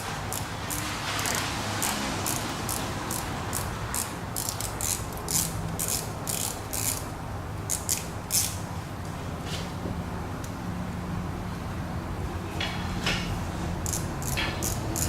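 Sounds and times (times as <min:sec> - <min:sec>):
ratchet wrench clicking: 0:00.0 - 0:07.1, 0:07.7 - 0:08.6, 0:13.8 - 0:15.0.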